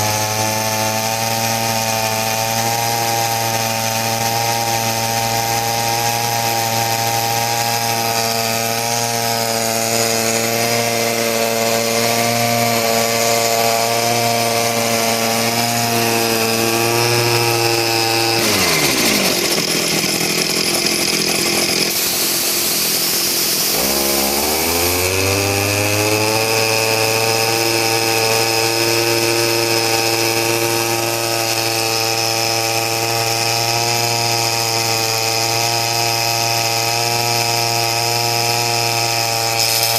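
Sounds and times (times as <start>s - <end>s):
air compressor engine running: 0.0s - 39.9s
air hiss: 21.9s - 24.7s, 39.6s - 39.9s.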